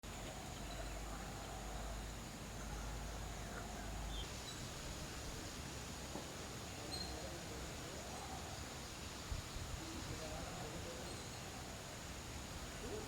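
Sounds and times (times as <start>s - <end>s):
faint high-pitched whine: 0.0s - 13.0s
steady hiss: 0.0s - 13.0s
faint bird chirps: 0.2s - 4.8s, 6.8s - 7.3s, 10.8s - 11.7s.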